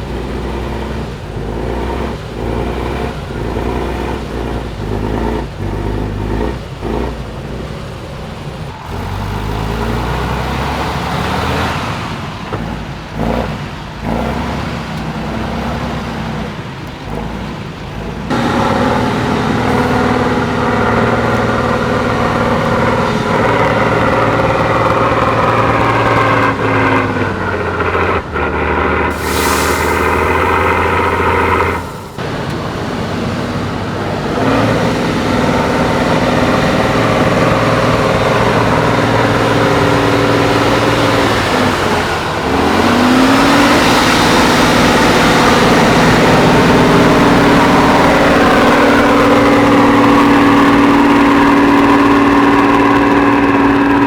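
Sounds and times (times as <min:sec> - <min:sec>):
diesel truck engine under load: 0:00.0 - 0:54.0
air hiss: 0:29.1 - 0:32.2.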